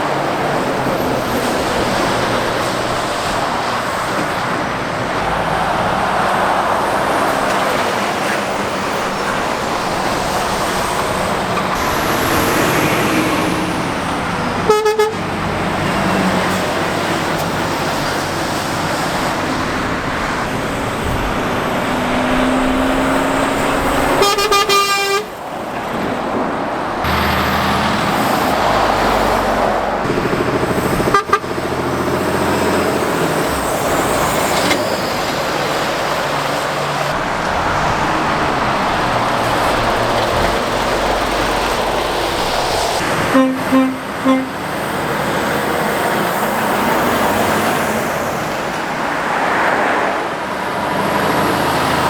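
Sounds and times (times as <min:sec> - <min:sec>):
road traffic passing: 0:00.0 - 0:52.0
vehicle horn: 0:14.6 - 0:15.3, 0:24.0 - 0:25.3, 0:31.0 - 0:31.6, 0:43.0 - 0:44.7.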